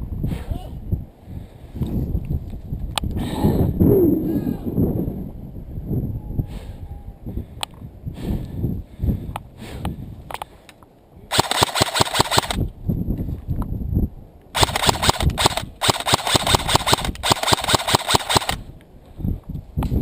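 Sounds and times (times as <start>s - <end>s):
airsoft guns firing full auto: 11.3s - 12.6s, 14.6s - 18.6s.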